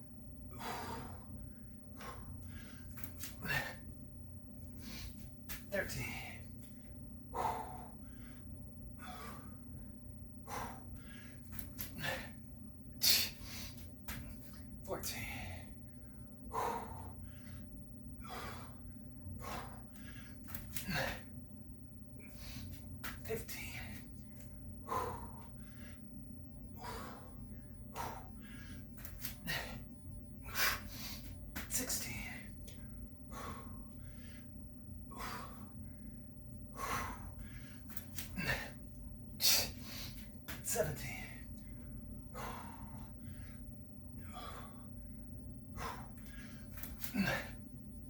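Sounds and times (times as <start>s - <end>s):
person breathing hard: 0.5s - 3.9s, 7.3s - 9.7s, 10.4s - 12.4s, 15.1s - 21.4s, 24.8s - 26.0s, 26.7s - 34.5s, 35.1s - 38.8s, 42.3s - 45.0s, 45.7s - 47.6s.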